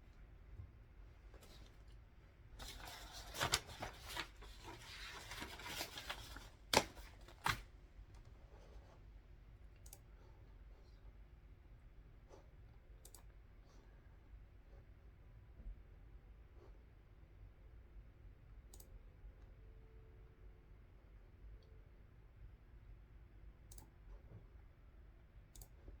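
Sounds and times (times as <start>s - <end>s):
paper rustling: 1.3s - 7.7s.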